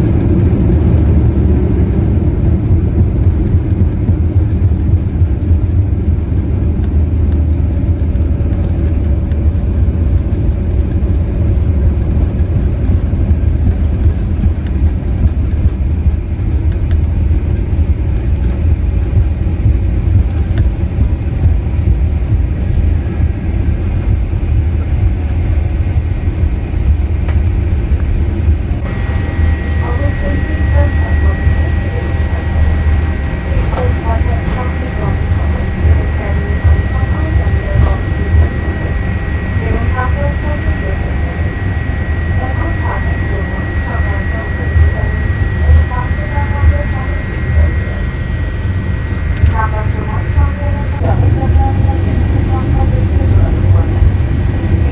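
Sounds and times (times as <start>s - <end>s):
airliner cabin engine rumble: 0.0s - 54.9s
thin steady high tone: 28.8s - 54.0s.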